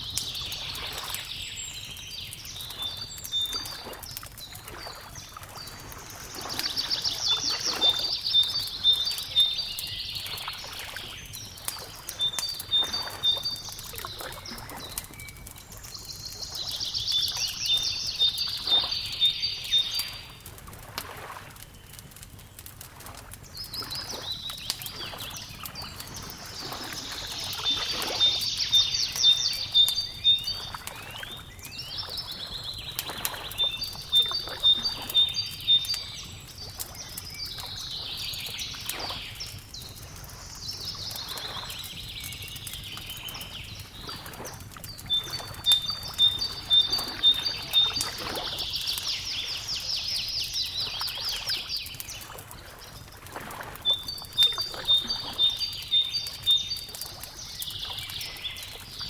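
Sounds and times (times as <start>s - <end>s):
wood fire crackling: 0.0s - 59.0s
faint lapping water: 0.1s - 59.0s
songbird trilling: 12.1s - 20.3s, 24.1s - 32.8s, 33.5s - 36.3s, 45.1s - 51.9s, 53.9s - 56.9s.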